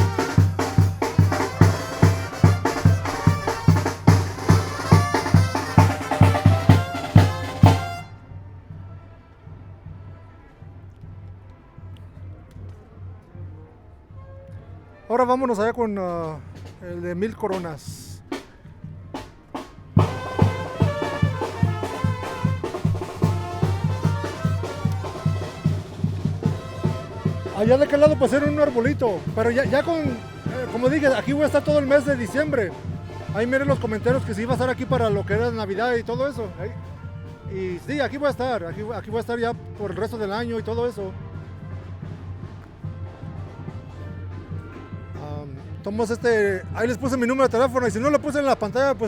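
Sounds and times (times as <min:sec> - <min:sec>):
bass drum beating: 0:00.0 - 0:08.0, 0:20.0 - 0:35.6
brass band music: 0:00.0 - 0:10.0, 0:19.1 - 0:49.0
bass drum strokes: 0:18.2 - 0:31.5.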